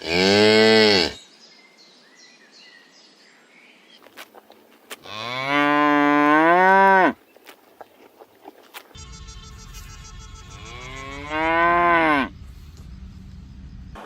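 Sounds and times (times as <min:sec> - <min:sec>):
cow mooing: 0:00.0 - 0:01.2, 0:05.0 - 0:07.2, 0:10.4 - 0:12.3.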